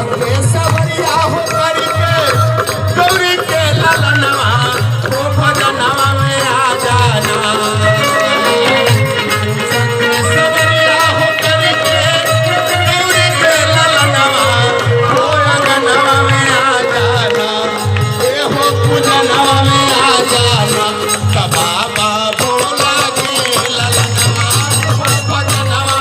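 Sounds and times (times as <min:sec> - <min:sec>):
hand drum beat: 0:00.0 - 0:26.0
jangling metal percussion: 0:00.0 - 0:26.0
wavering melody: 0:05.4 - 0:21.8.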